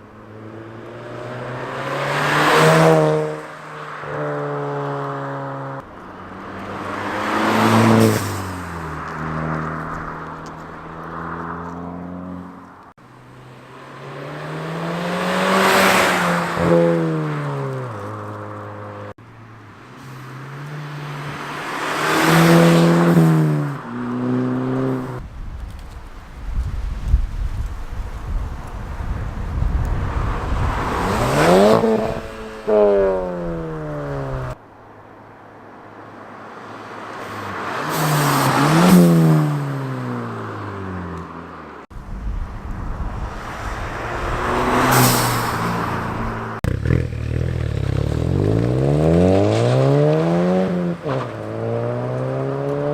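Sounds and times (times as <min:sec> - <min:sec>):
car engine revving past: 0:00.3 - 0:12.6, 0:13.8 - 0:18.0, 0:20.0 - 0:25.2, 0:29.9 - 0:34.6, 0:43.0 - 0:52.9
wind noise: 0:25.1 - 0:34.6, 0:41.9 - 0:46.5.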